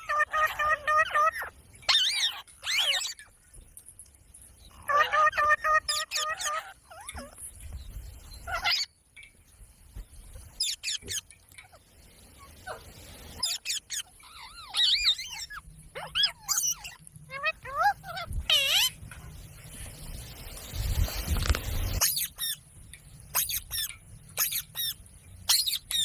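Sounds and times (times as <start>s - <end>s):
parrot chirps and whistles: 0.0s - 3.3s, 4.8s - 7.4s, 8.4s - 9.0s, 10.6s - 11.8s, 12.4s - 19.0s, 21.9s - 22.6s, 23.3s - 26.0s
parrot squawking: 0.0s - 3.3s, 4.8s - 7.4s, 8.5s - 8.9s, 10.6s - 11.3s, 12.7s - 19.0s, 22.0s - 22.6s, 23.3s - 26.0s.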